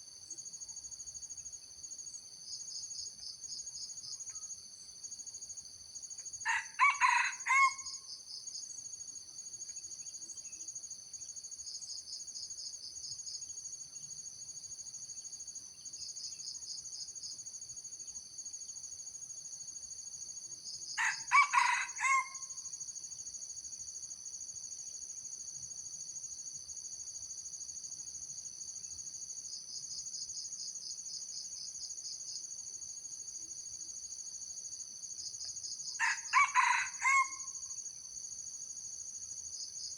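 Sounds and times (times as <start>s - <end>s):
insects trilling: 0.6s - 39.9s
rooster crowing: 6.5s - 8.0s, 21.0s - 22.5s, 36.0s - 37.6s.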